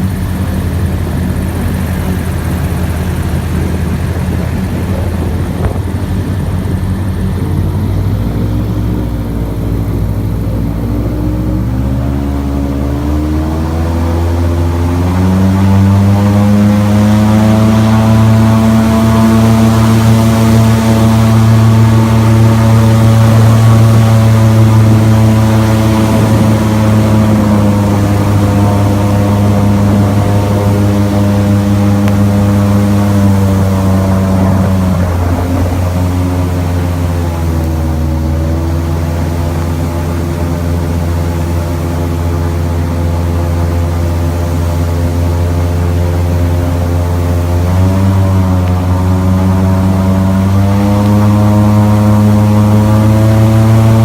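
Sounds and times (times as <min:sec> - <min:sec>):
airboat engine and propeller: 0:00.0 - 0:54.0.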